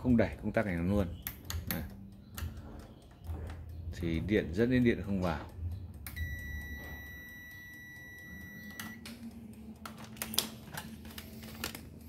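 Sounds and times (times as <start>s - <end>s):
high-pitched electronic beep: 6.2s - 9.0s.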